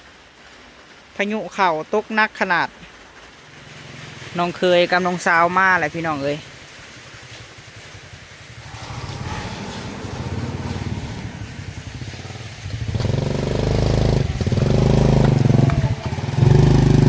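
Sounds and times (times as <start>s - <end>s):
motorcycle engine approaching: 3.4s - 17.0s.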